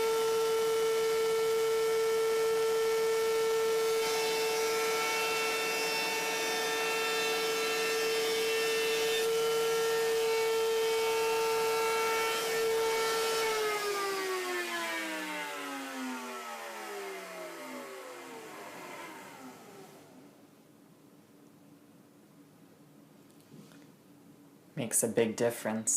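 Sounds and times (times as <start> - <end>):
router bit cutting wood: 0.0 - 20.2
wood router whining: 0.0 - 20.4
router spinning down: 10.7 - 20.3.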